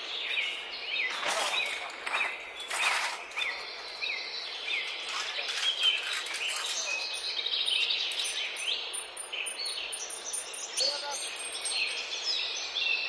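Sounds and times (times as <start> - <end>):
outdoor background hiss: 0.0 - 13.0
small birds chirping: 0.0 - 13.0.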